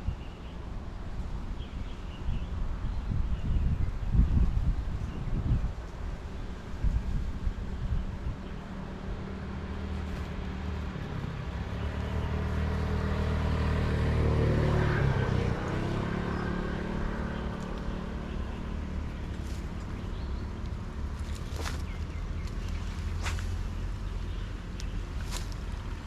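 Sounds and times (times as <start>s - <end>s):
motor vehicle passing by: 6.0s - 26.0s.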